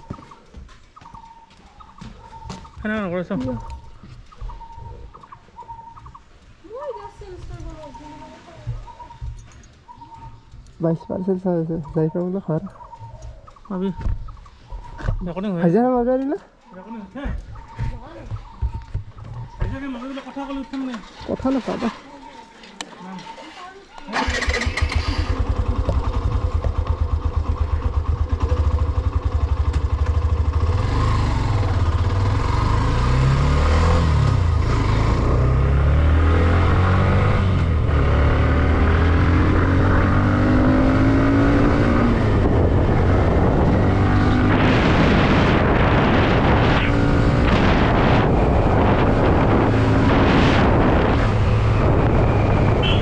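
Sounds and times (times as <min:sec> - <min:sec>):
motorcycle engine running: 0:24.1 - 0:53.0.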